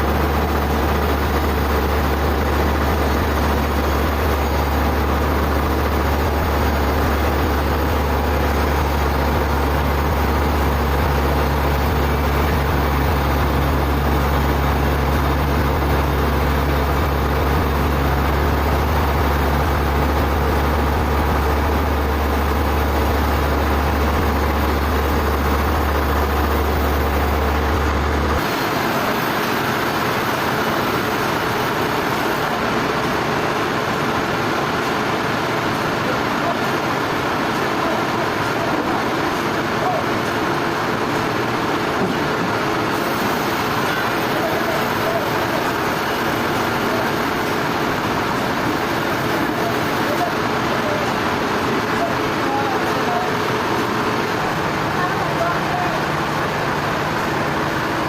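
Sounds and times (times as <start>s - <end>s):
sawmill machinery running: 0.0s - 58.0s
deep hum: 1.1s - 28.4s.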